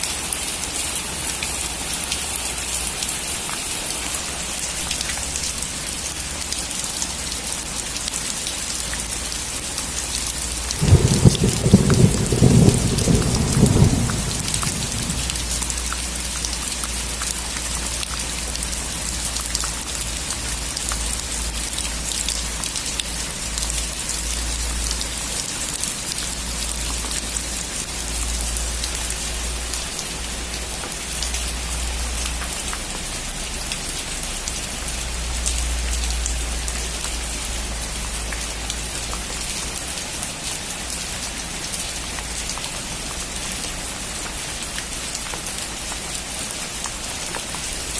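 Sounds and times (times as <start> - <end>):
rain falling: 0.0 - 47.9
low thunder rumble: 10.7 - 15.9.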